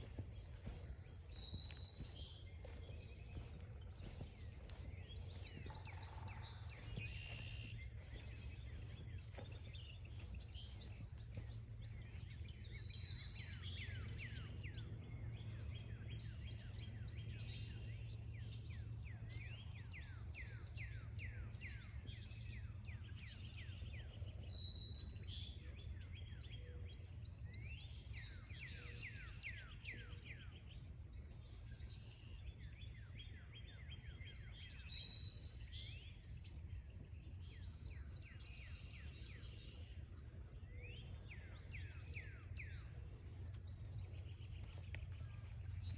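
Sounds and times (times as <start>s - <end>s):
steady low rumble: 0.0s - 14.1s, 36.0s - 45.9s
songbirds singing and calling: 0.0s - 45.9s.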